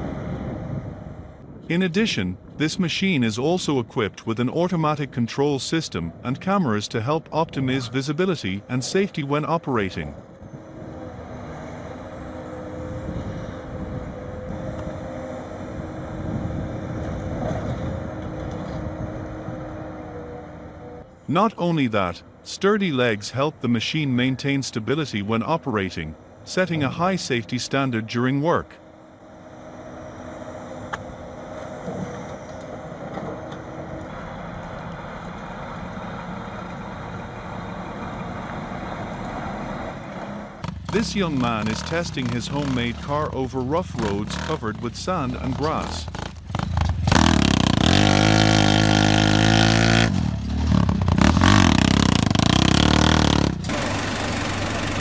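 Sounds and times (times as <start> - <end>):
low engine rumble: 24.8 - 55.0.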